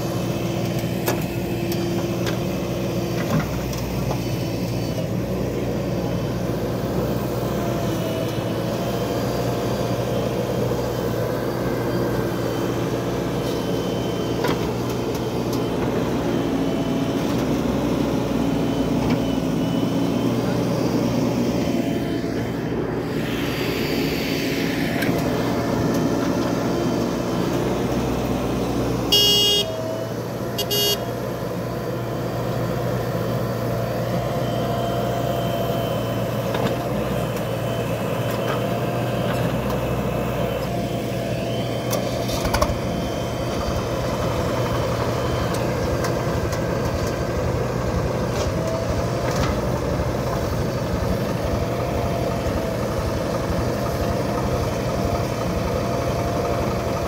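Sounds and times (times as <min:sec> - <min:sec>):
tractor diesel engine running: 0:00.0 - 0:57.0
vehicle horn honking: 0:29.1 - 0:29.8, 0:30.6 - 0:31.1.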